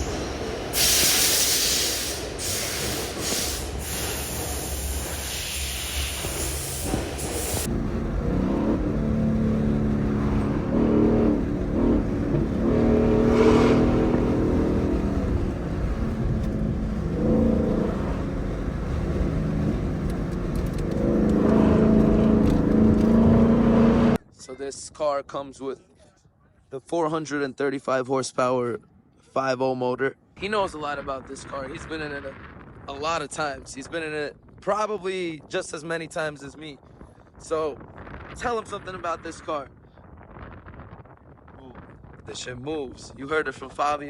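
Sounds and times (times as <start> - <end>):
loud steady hiss: 0.8 - 7.7
car engine running: 7.3 - 24.2.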